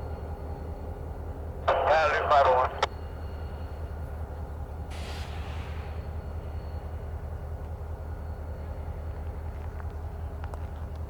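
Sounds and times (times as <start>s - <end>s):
diesel locomotive idling: 0.0s - 11.0s
air hissing: 4.9s - 6.6s.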